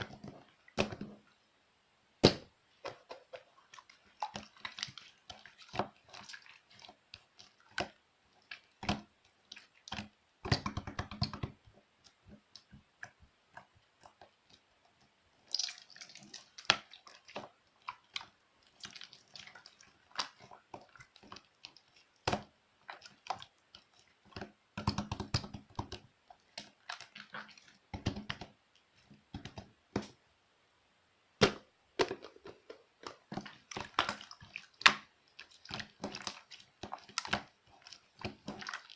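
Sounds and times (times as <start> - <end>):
slime squished by hand: 33.0 - 38.9.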